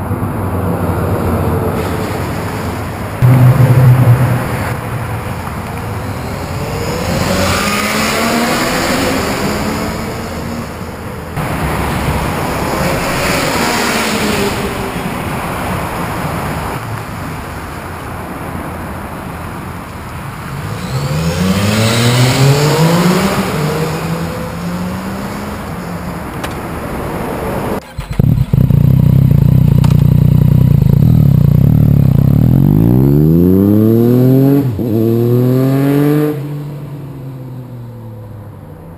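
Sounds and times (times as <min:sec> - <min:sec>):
motorcycle engine revving: 0:03.2 - 0:11.6, 0:20.7 - 0:25.6, 0:27.8 - 0:37.3.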